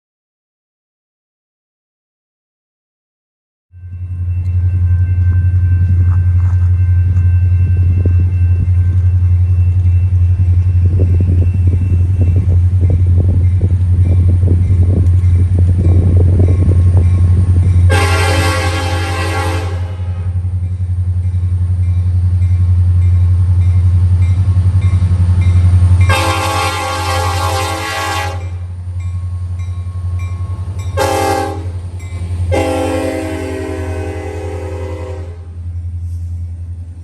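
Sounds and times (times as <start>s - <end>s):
train low rumble: 3.8s - 37.0s
locomotive air horn: 17.9s - 20.4s, 26.1s - 28.7s, 31.0s - 31.8s, 32.5s - 35.6s.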